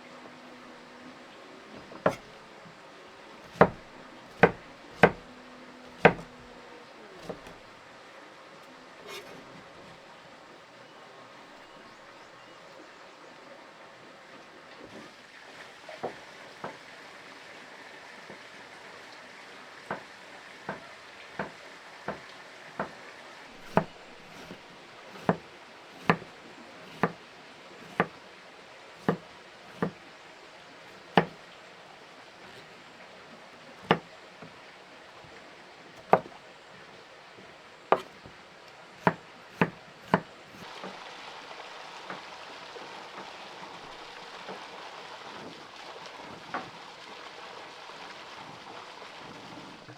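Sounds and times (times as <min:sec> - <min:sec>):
sharp knocks: 0:03.5 - 0:05.2, 0:05.9 - 0:06.4, 0:23.6 - 0:24.6, 0:37.9 - 0:38.3.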